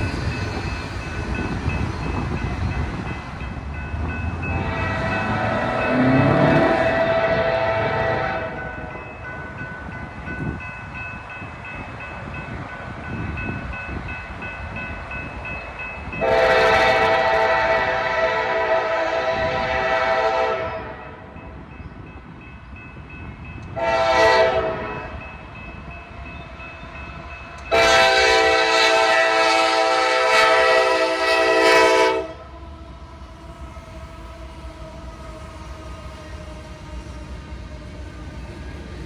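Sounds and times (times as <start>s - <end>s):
low train rumble: 0.0s - 39.0s
locomotive air horn blasts: 4.5s - 8.8s, 16.2s - 21.2s, 23.8s - 25.2s, 27.7s - 32.4s.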